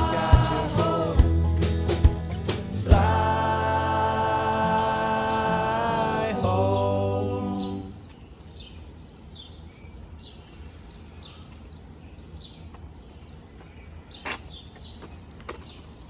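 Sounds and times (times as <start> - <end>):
low steady hum: 0.0 - 9.0
bird chirping: 5.1 - 16.0.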